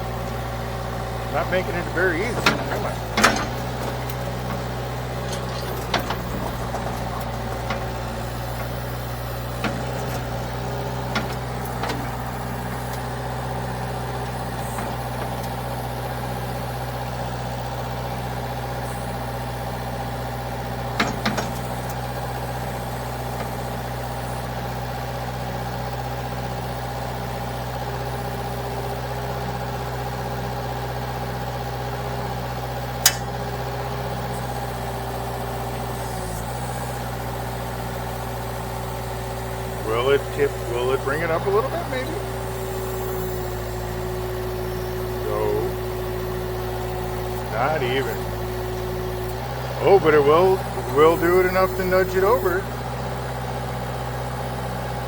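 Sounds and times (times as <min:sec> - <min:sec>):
sawmill engine idling: 0:00.0 - 0:55.0
sharp knocks and clanks: 0:01.4 - 0:08.8, 0:33.1 - 0:33.4.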